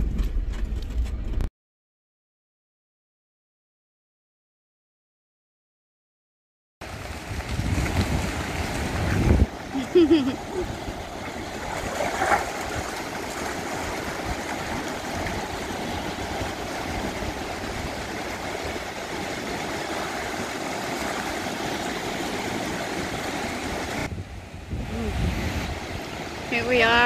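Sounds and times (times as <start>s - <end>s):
wind: 0.0s - 1.5s, 6.8s - 27.0s.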